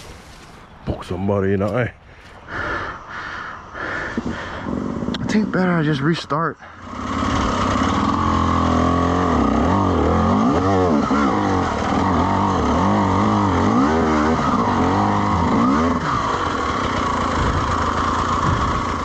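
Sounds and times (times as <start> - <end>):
dirt bike engine revving: 4.0 - 6.1, 6.7 - 19.0.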